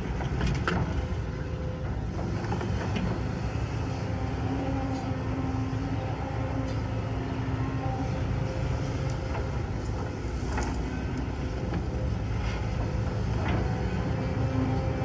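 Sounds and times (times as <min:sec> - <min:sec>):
heavy machinery diesel engine: 0:00.0 - 0:15.0.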